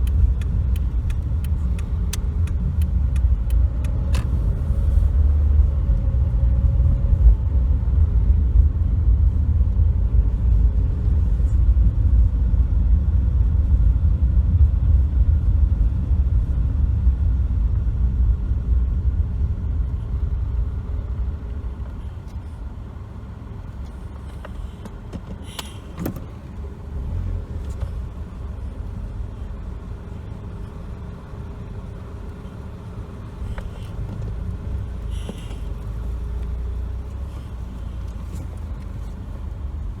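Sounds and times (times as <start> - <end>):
faint clicks: 0.0 - 4.3
car road and engine rumble: 0.0 - 40.0.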